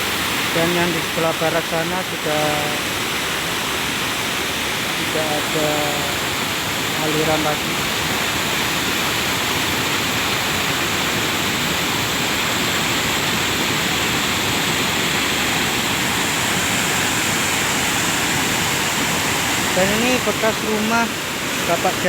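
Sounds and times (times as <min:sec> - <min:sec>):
mudflow rushing: 0:00.0 - 0:22.0.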